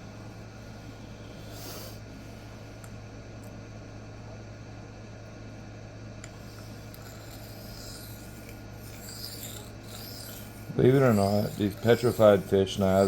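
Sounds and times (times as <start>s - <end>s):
steady low hum: 0.0s - 13.0s
knife scraping on sharpening plate: 6.9s - 13.0s.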